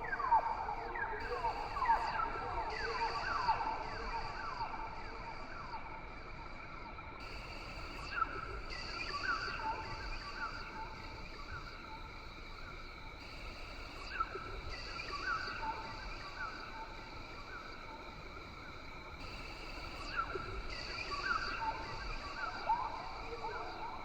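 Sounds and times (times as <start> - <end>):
insect drone: 0.0 - 24.0.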